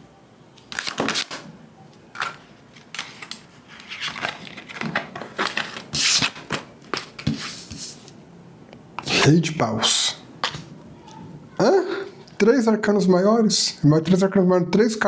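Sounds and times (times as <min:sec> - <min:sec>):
cards being shuffled: 0:00.6 - 0:01.5, 0:02.1 - 0:08.2.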